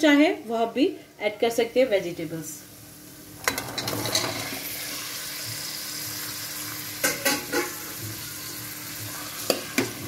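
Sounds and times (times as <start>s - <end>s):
vegetables sizzling in hot oil: 2.0s - 10.0s.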